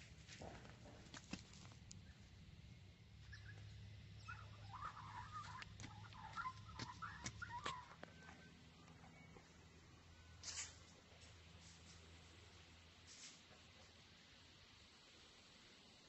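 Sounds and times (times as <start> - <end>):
faint wavy bird chirps: 2.0 - 10.8.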